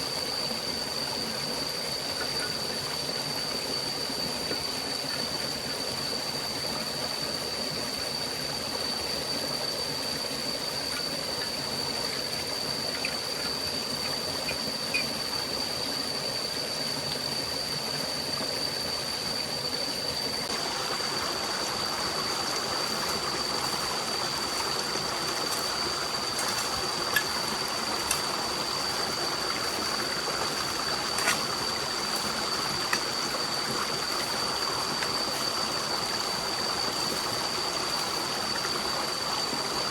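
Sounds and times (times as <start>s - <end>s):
stream rushing: 17.3s - 39.9s.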